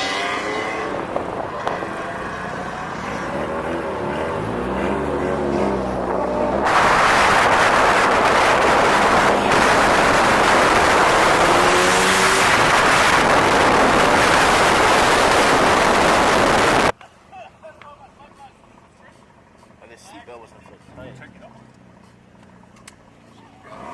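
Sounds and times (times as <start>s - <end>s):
car engine running: 0.0s - 16.9s
rushing noise of moving car: 0.0s - 17.0s.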